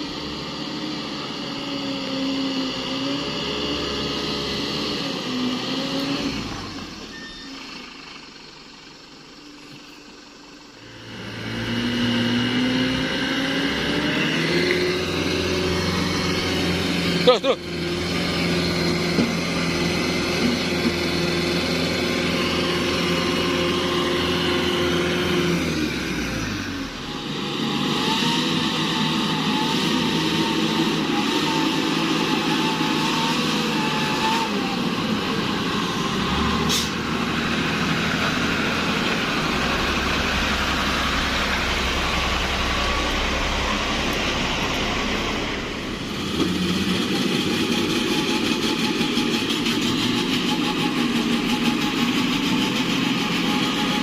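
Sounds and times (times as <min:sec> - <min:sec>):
truck diesel engine under load: 0:00.0 - 0:54.0
wavering whine: 0:38.4 - 0:46.4.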